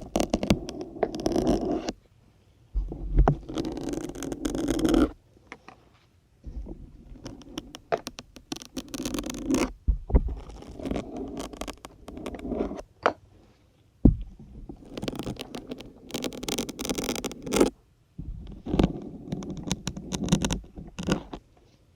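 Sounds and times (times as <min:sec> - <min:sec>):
syringe squeaking against foam: 0:00.0 - 0:01.9, 0:07.2 - 0:09.7, 0:10.4 - 0:12.5, 0:14.8 - 0:17.8.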